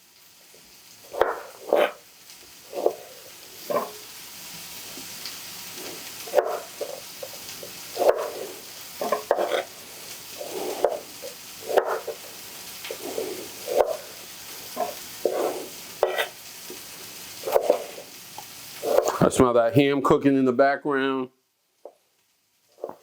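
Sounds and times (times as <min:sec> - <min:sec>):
meat sizzling in a pan: 0:00.0 - 0:19.6, 0:21.6 - 0:23.0
utensil scraping a pan: 0:01.0 - 0:02.0, 0:02.6 - 0:04.2, 0:04.9 - 0:19.4, 0:22.8 - 0:23.0.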